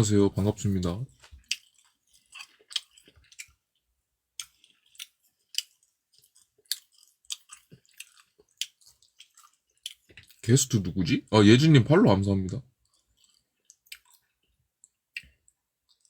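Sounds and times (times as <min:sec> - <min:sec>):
person chewing with mouth smacks: 0:01.1 - 0:10.5, 0:12.8 - 0:16.0.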